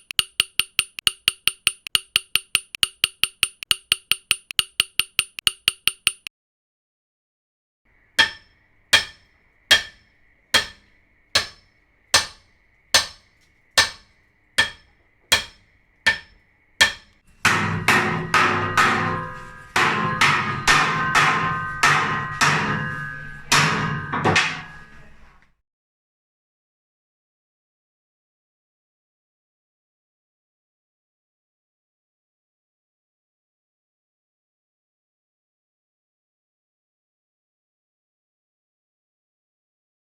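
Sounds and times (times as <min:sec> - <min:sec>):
hammer blows: 0:00.0 - 0:06.3, 0:08.1 - 0:24.9
ringing after hammer strikes: 0:00.0 - 0:06.3, 0:08.2 - 0:24.9.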